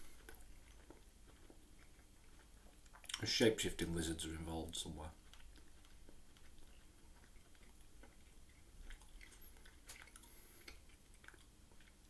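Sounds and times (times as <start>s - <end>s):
faint chewing: 0.0s - 12.0s
soft mouth clicks: 2.9s - 3.3s, 8.9s - 11.5s.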